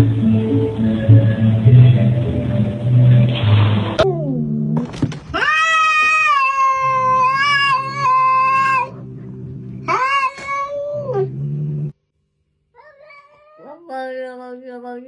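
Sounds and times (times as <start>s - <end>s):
music: 0.0s - 4.0s
cat meowing and yowling: 5.3s - 8.9s, 9.9s - 11.3s, 12.8s - 13.7s.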